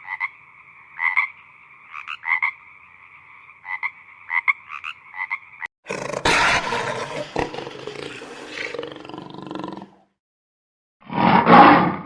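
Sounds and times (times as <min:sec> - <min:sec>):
large wild animal roaring: 0:05.9 - 0:10.0, 0:11.0 - 0:12.0.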